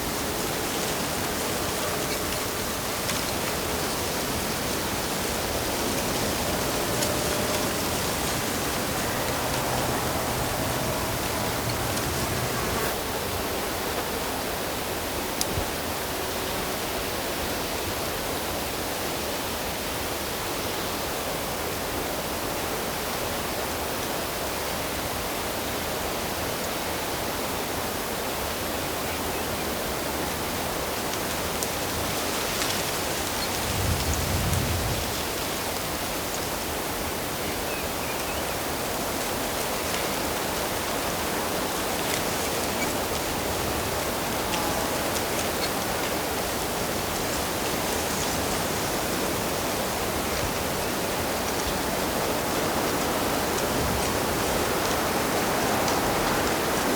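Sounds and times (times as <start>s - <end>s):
running water rushing: 0.0s - 13.1s, 30.7s - 56.9s.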